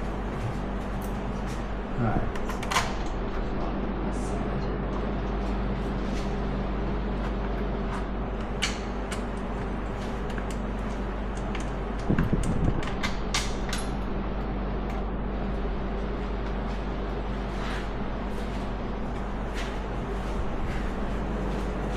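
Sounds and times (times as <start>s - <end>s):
steady background hum: 0.0s - 21.9s
clicks and knocks of tools: 7.2s - 14.0s.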